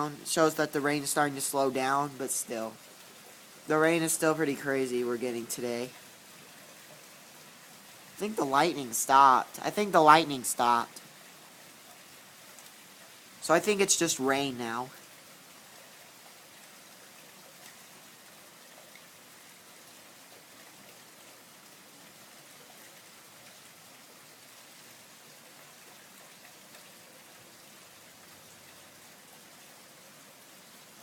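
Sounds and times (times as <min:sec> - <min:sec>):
heavy rain pouring: 0:00.0 - 0:31.0
faint raindrop ticks: 0:10.9 - 0:13.5, 0:14.9 - 0:29.1.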